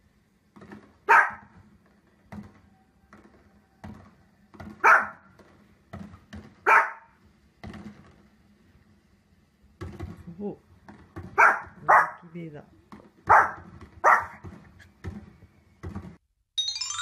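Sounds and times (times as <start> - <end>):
small dog barking: 1.1 - 1.5, 4.8 - 5.3, 6.6 - 7.2, 11.4 - 12.3, 13.3 - 14.4
thumps: 12.8 - 16.2.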